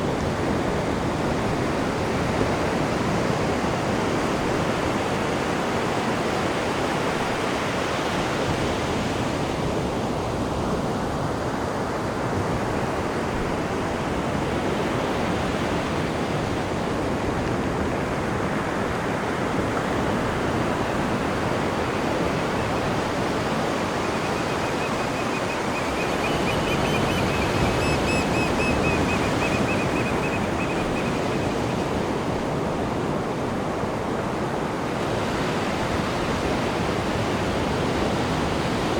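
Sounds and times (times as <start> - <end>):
rushing churned water: 18.1 - 38.6.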